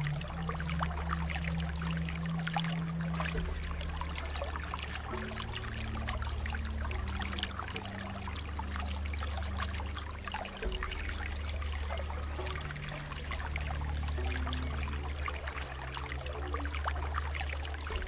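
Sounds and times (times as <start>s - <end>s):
low sustained drone: 0.0s - 18.0s
water trickling and splashing: 0.0s - 18.0s.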